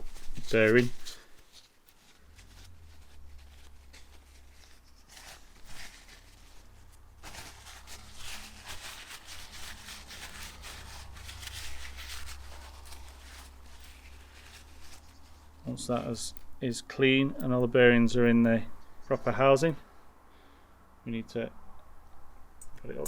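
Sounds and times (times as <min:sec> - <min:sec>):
scratchy rubbing: 0:00.0 - 0:16.5.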